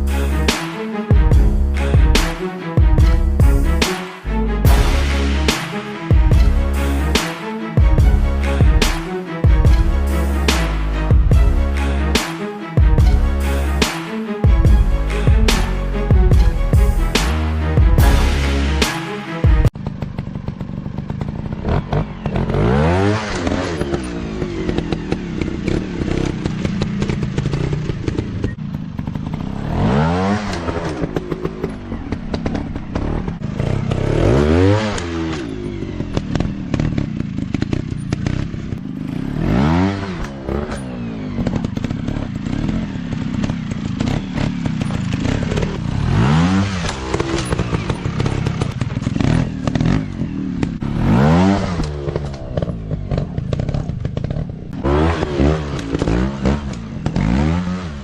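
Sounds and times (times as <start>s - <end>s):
dirt bike engines revving: 19.8s - 58.0s.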